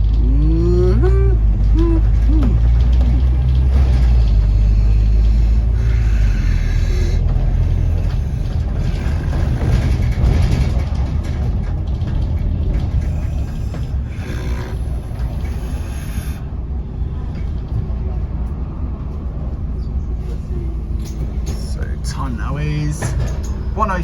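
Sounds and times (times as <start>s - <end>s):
bus diesel engine droning: 0.0s - 24.0s
hiss: 13.1s - 16.4s.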